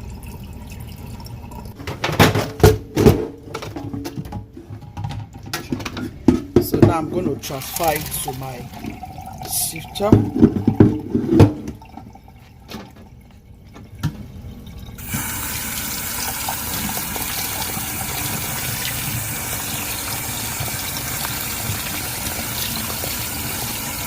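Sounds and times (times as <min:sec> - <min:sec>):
tap water running over rice: 0:07.4 - 0:11.0, 0:11.7 - 0:24.0.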